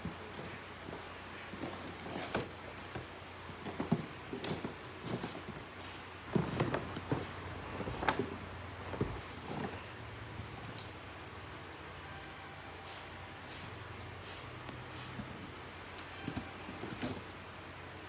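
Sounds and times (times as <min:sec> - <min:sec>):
handling clicks knocks and rustles: 0:00.0 - 0:11.0, 0:14.7 - 0:17.3.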